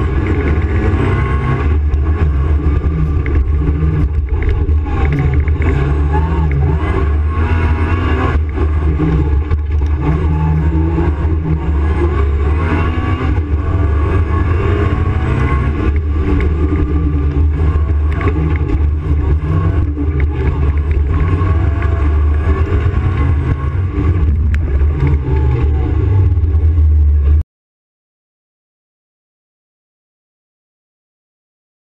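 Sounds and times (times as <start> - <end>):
race car engine revving: 0.0 - 27.4.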